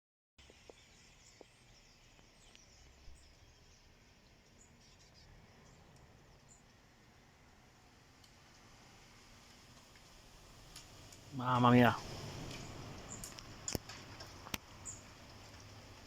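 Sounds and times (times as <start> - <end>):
flock of birds chirping: 0.4 - 6.8, 11.4 - 16.0.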